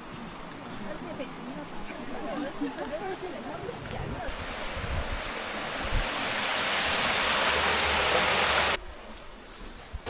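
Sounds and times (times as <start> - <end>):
stream water rushing: 4.2 - 8.8.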